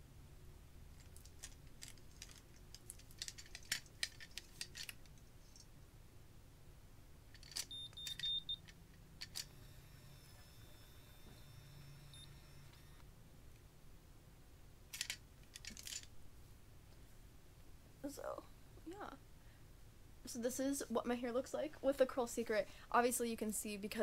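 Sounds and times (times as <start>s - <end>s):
plastic clicks and rattles: 1.0s - 5.6s, 7.3s - 9.5s, 14.9s - 16.1s
faint high whine: 5.2s - 14.8s
short steady beep: 7.7s - 8.6s, 9.6s - 13.0s.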